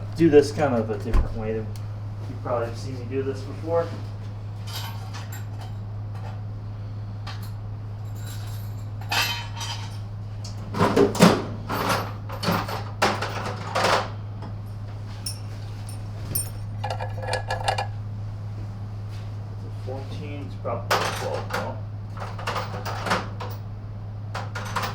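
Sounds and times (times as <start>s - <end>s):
steady low hum: 0.0s - 4.6s, 14.6s - 20.8s
metal tools clinking: 15.3s - 18.0s.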